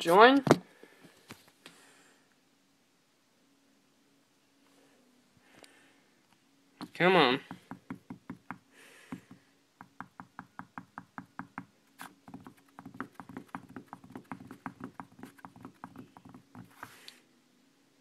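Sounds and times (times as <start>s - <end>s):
rapid light taps on hard surface: 7.4s - 11.7s, 12.3s - 16.7s.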